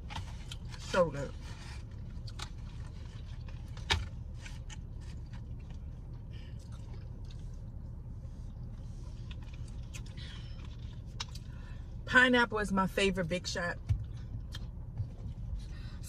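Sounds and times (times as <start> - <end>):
low hum: 0.0 - 16.0
chewing and mouth clicks: 2.1 - 11.6, 14.0 - 15.5.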